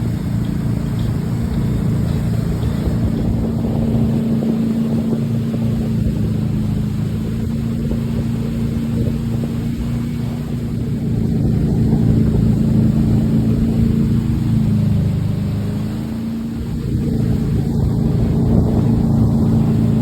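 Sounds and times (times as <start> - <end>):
motorboat engine humming: 0.0 - 20.0.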